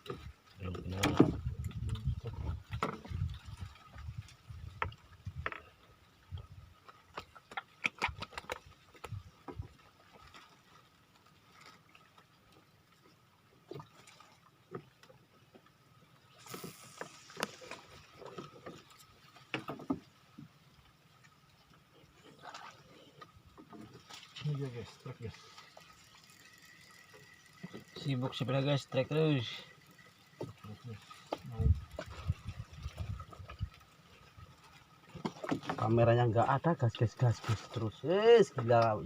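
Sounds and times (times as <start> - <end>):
short hiss: 16.3 - 17.9.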